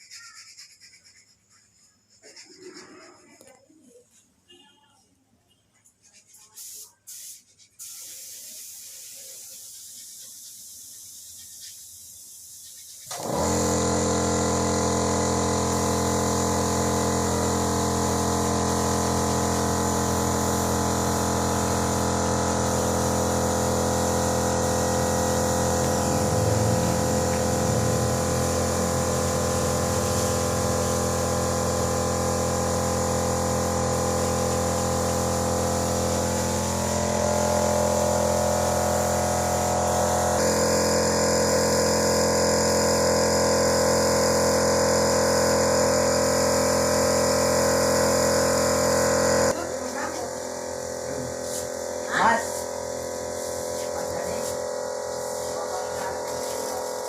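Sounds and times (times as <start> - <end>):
air compressor running: 6.2 - 57.0.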